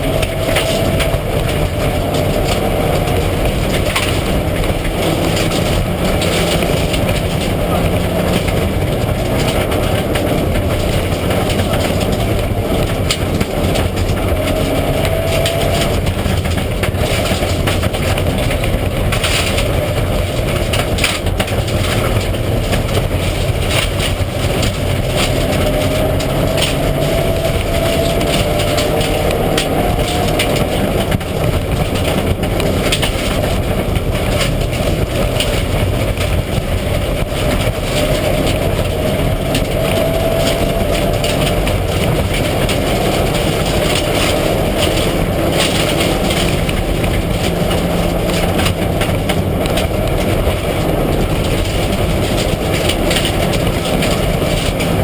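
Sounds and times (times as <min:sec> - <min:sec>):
rally car engine revving: 0:00.0 - 0:55.0
road and tyre noise: 0:00.0 - 0:55.0.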